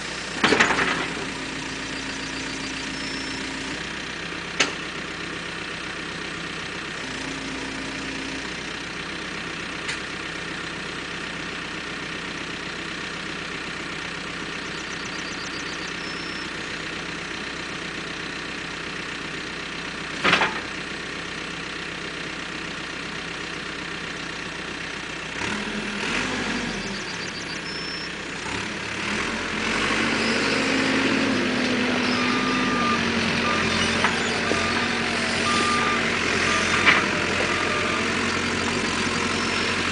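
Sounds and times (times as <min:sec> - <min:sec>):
diesel engine idling: 0:00.0 - 0:39.9
reversing alarm beeping: 0:01.8 - 0:03.6, 0:14.8 - 0:16.5, 0:31.9 - 0:39.9.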